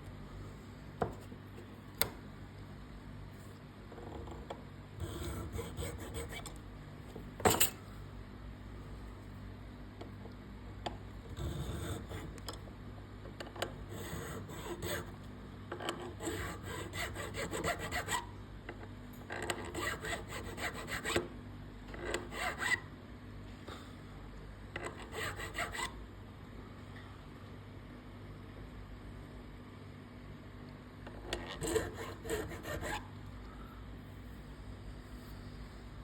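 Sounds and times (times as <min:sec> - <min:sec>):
bone being sanded: 0:05.0 - 0:06.5, 0:13.9 - 0:15.2, 0:16.2 - 0:18.3, 0:19.8 - 0:21.2, 0:22.3 - 0:22.8, 0:25.0 - 0:25.9, 0:31.6 - 0:33.0.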